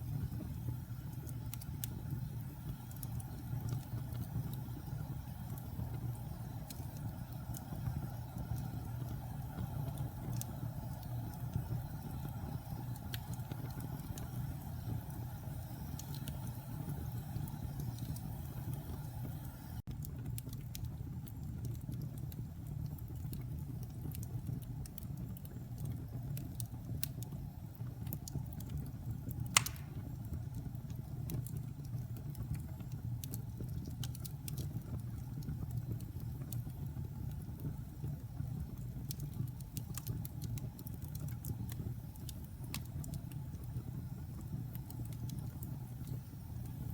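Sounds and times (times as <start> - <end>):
fire crackles: 0.0 - 46.9
wood fire burning: 0.0 - 46.9
loud fire pop: 29.6 - 30.1.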